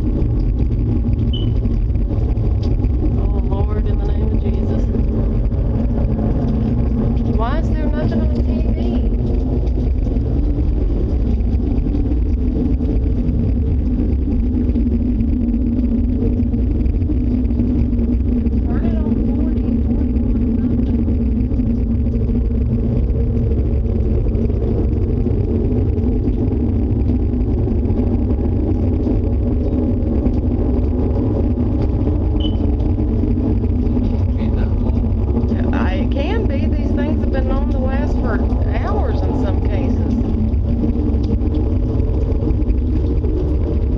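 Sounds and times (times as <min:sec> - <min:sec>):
droning hum: 0:00.0 - 0:43.9
loud low rumble: 0:00.0 - 0:43.9.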